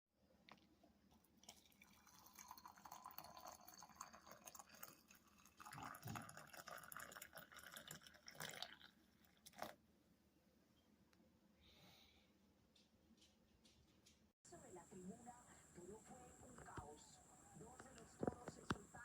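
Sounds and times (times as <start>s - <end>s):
water pouring into kettle: 1.4s - 9.7s.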